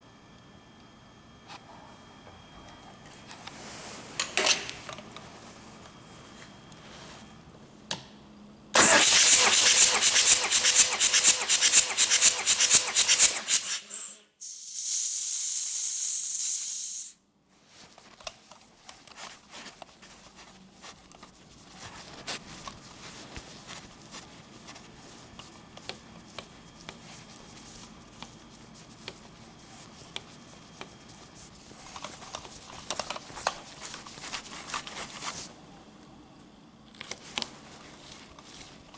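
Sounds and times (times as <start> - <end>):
diesel engine cranking: 8.8 - 14.2
steady hiss: 8.8 - 17.2.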